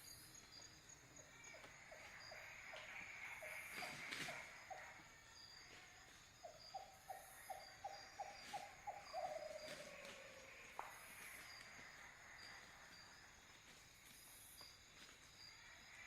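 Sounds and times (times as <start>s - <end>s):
crickets chirping: 0.0s - 16.0s
animal calls: 6.5s - 12.7s.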